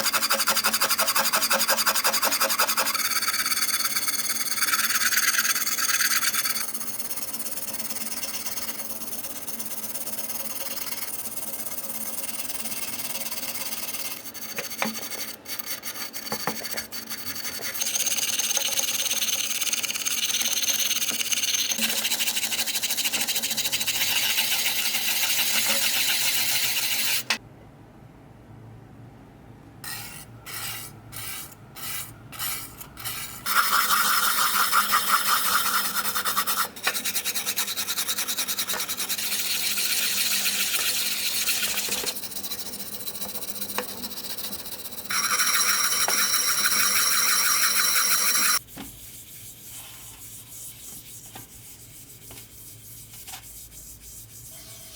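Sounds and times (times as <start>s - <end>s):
abrasive scrubbing on metal: 29.9s - 54.9s.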